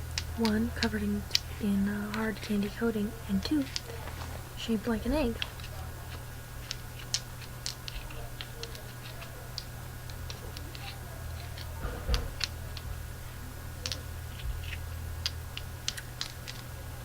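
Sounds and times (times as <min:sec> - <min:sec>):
steady low hum: 0:00.0 - 0:17.0
candy package clicks and taps: 0:03.4 - 0:04.3, 0:13.8 - 0:16.7.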